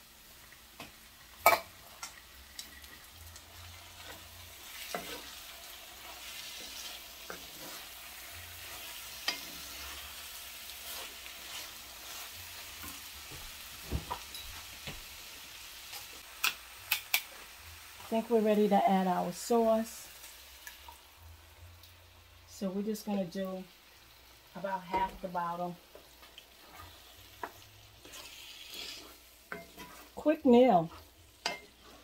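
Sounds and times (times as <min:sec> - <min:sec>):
food sizzling in a skillet: 0:00.0 - 0:32.0
wooden spoon stirring and scraping: 0:02.6 - 0:14.8, 0:24.9 - 0:32.0.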